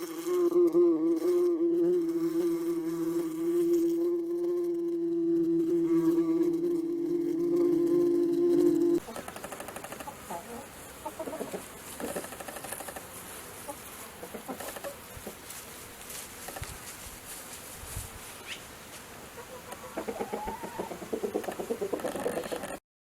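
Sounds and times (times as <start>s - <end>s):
chickens clucking: 8.8s - 15.6s, 19.3s - 22.8s.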